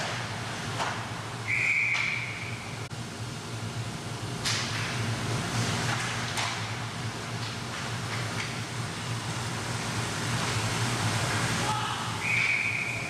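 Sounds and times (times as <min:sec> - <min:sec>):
low hum of rink: 0:00.0 - 0:13.0
referee's whistle: 0:01.4 - 0:02.8, 0:12.2 - 0:13.0.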